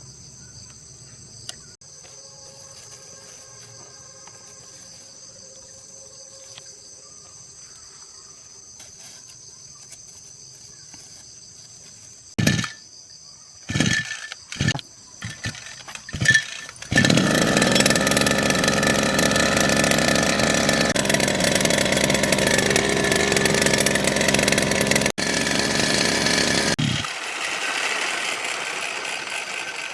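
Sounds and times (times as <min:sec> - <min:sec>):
crickets chirping: 0:00.0 - 0:19.9
small petrol engine starting: 0:12.4 - 0:12.8, 0:13.7 - 0:29.9.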